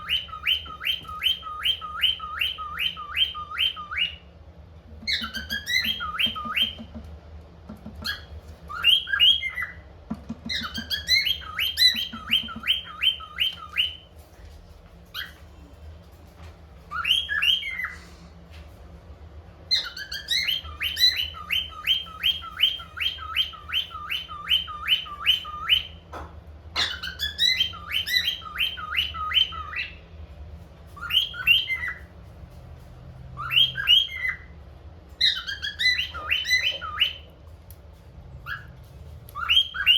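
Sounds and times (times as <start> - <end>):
cockatiel whistling: 0.0 - 4.3, 5.0 - 7.0, 8.0 - 14.1, 15.1 - 15.4, 16.9 - 18.1, 19.7 - 26.0, 26.7 - 30.0, 31.0 - 32.1, 33.4 - 34.5, 35.2 - 37.3, 38.4 - 38.7, 39.3 - 39.9.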